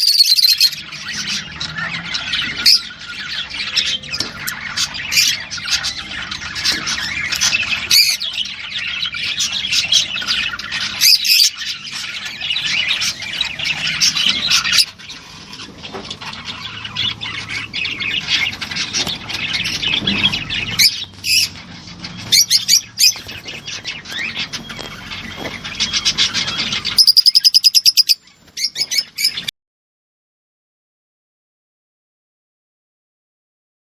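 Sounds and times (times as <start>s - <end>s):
loud rapid pulsed bird call: 0.0s - 0.9s, 16.5s - 29.5s
birds chirping and squawking: 0.0s - 29.5s.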